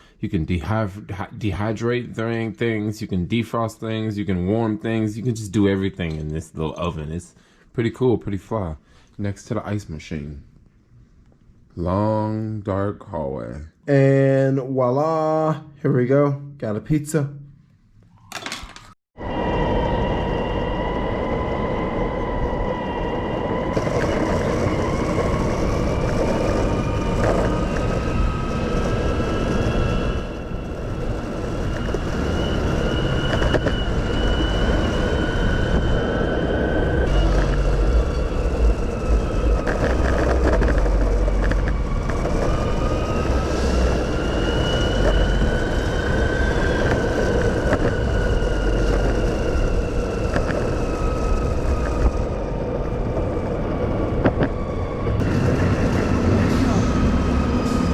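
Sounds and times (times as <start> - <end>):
vehicle rumble with whine: 22.2 - 57.9.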